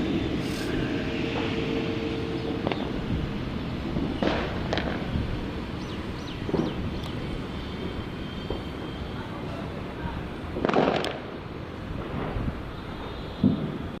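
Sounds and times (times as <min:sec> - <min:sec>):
engine tone: 0:00.0 - 0:04.8
jet engines rumbling: 0:00.0 - 0:14.0.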